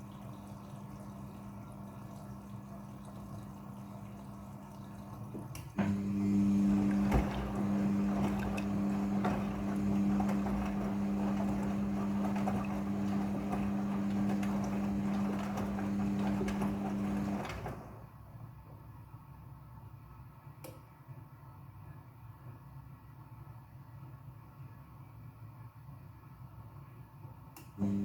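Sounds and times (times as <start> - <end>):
washing machine motor hum: 0.0 - 18.7, 27.6 - 28.0.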